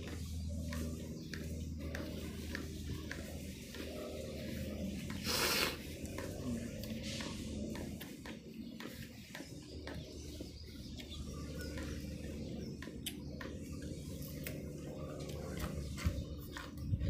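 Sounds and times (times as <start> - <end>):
faint birds chirping: 0.0 - 17.0
steady low hum: 0.0 - 17.0.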